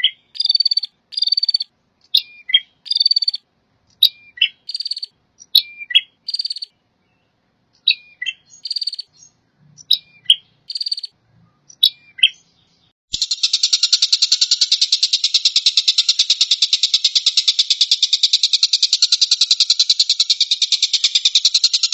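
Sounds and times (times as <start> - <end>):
bird calls with buzzy trill: 0.0 - 3.4, 4.0 - 6.8, 7.8 - 12.5, 13.1 - 21.9
fast buzzy bird rattle: 0.4 - 1.7, 2.9 - 3.4, 4.7 - 5.1, 6.3 - 6.7, 8.7 - 9.1, 10.7 - 11.1, 13.2 - 21.9.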